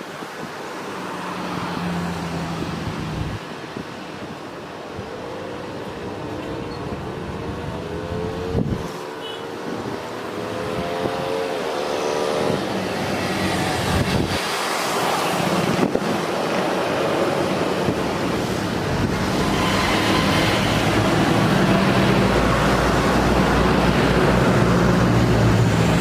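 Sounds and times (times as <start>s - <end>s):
jet engine roar: 9.8s - 26.0s
jet engine whine: 11.6s - 24.4s.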